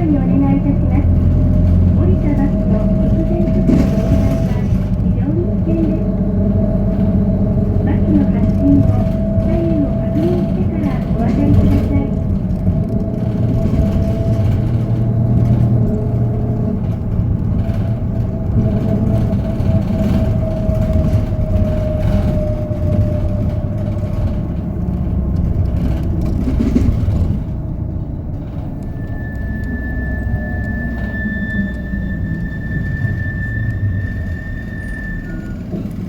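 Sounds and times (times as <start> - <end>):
bus diesel engine rumble: 0.0 - 36.0
drivetrain whine: 0.0 - 36.0
steady high tone: 28.7 - 35.6.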